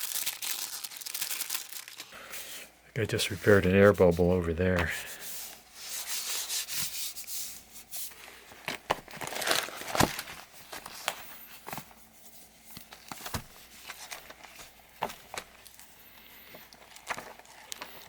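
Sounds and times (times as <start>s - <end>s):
paper rustling: 3.2s - 15.8s, 16.6s - 18.0s.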